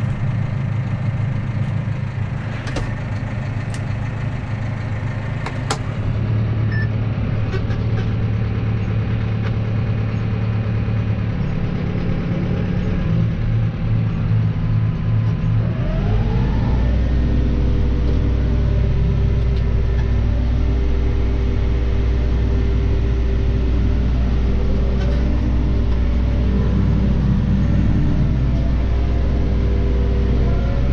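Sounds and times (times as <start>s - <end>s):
tractor engine running: 0.0s - 30.9s.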